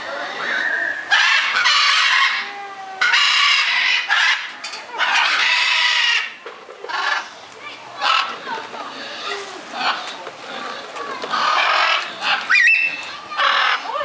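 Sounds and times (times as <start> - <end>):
macaws squawking: 0.2 - 7.3, 8.0 - 10.2, 11.3 - 14.0.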